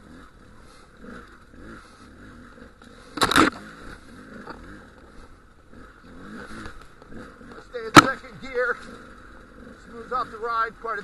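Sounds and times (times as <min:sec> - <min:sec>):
motorcycle engine running: 0:00.0 - 0:11.0
loud crunch: 0:02.6 - 0:09.1.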